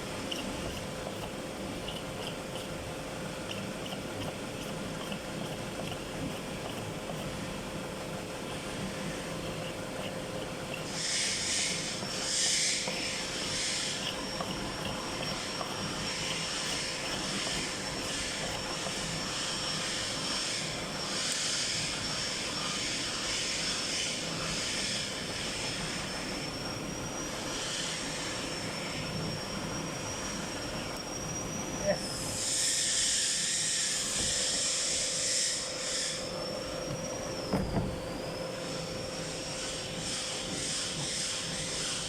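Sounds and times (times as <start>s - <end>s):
factory machinery hissing and humming: 0.0s - 42.0s.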